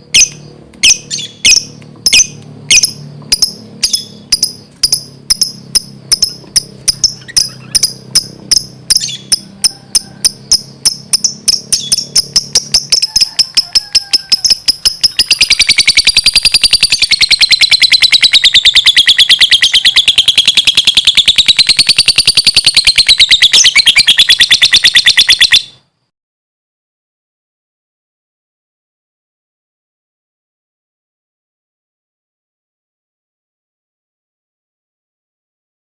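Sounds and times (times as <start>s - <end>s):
lovebird chirping: 0.2s - 25.8s.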